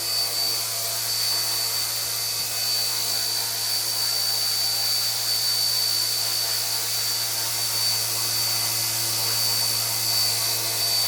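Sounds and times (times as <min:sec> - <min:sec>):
high-pitched electric motor whine: 0:00.0 - 0:11.0
low rotor hum: 0:00.0 - 0:11.0.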